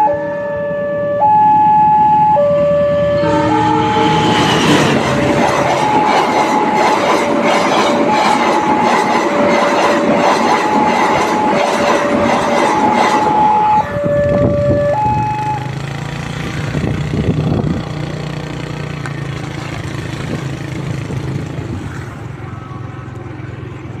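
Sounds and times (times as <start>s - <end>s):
two-tone crossing warning signal: 0.0s - 16.1s
train wheels clacking on rails: 4.0s - 14.5s.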